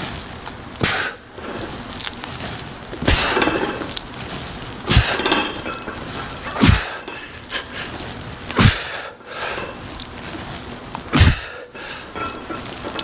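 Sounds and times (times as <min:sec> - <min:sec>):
barbell knocking and plates clinking: 0:04.9 - 0:06.0.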